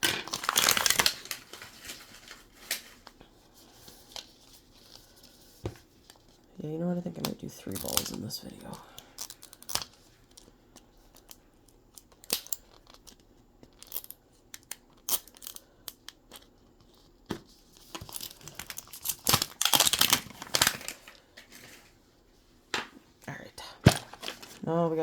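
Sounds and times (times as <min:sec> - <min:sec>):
plastic crinkling and tearing: 0:00.0 - 0:05.3, 0:07.0 - 0:10.5, 0:11.1 - 0:17.1, 0:17.7 - 0:21.9, 0:23.8 - 0:24.7
plastic packaging clicks and rustles: 0:00.0 - 0:22.0, 0:23.7 - 0:24.7.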